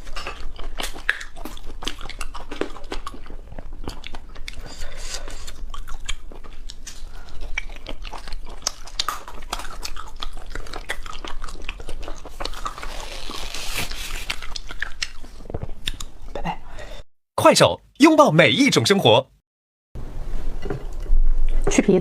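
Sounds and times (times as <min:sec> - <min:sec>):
crunchy biting and chewing: 0:00.0 - 0:16.2
wet mouth sounds: 0:00.0 - 0:16.4.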